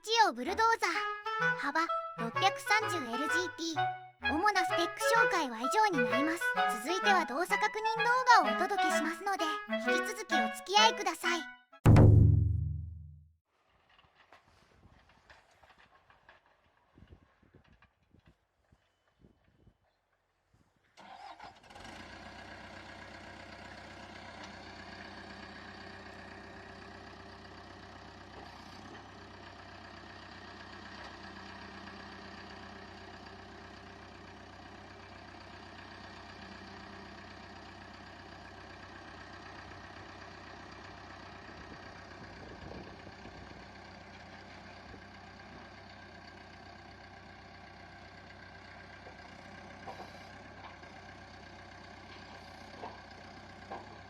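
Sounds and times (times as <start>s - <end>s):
bulldozer diesel engine idling: 22.0s - 54.0s.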